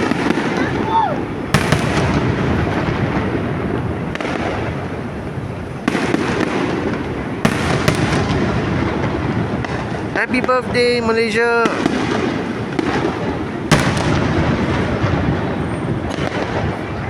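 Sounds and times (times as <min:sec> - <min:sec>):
low rumble of distant fireworks: 0:00.0 - 0:17.0
sharp firework bangs: 0:00.0 - 0:17.0.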